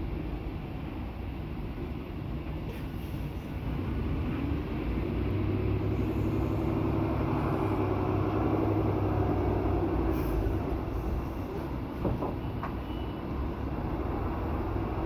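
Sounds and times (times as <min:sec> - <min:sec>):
diesel truck engine running: 0:03.1 - 0:12.2.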